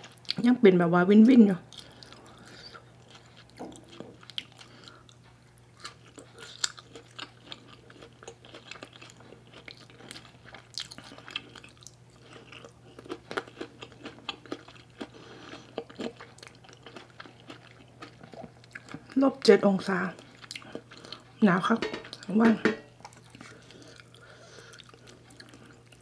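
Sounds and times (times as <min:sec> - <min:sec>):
person chewing and crunching: 0:01.6 - 0:19.2, 0:19.9 - 0:21.4, 0:23.0 - 0:26.0.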